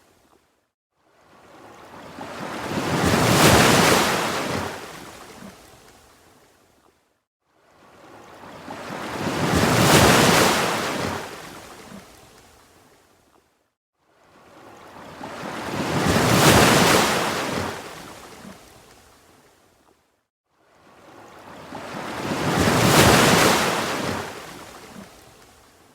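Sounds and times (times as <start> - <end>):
ocean waves breaking: 1.4 - 5.6, 7.9 - 12.1, 14.3 - 18.9, 20.9 - 25.4.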